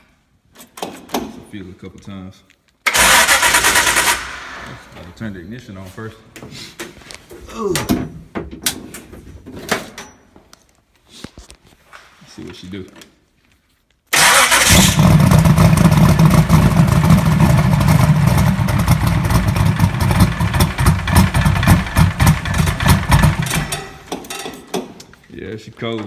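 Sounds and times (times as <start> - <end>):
car engine starting cold: 2.9 - 4.9, 14.2 - 23.8.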